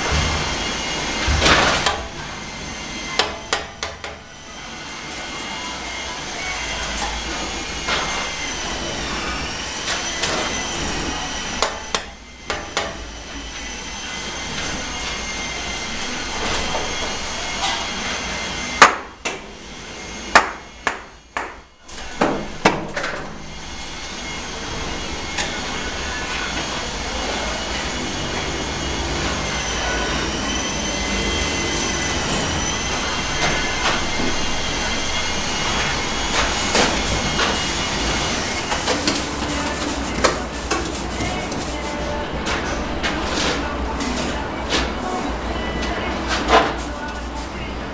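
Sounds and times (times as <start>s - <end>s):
electric mixer motor whining: 23.4s - 43.0s.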